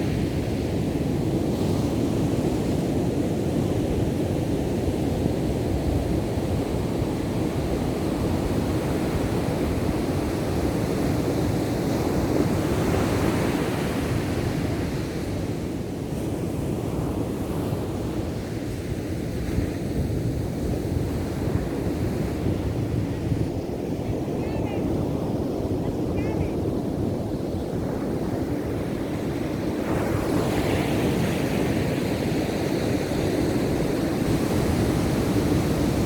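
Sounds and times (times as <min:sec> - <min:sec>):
ocean surf breaking: 0:16.3 - 0:36.0.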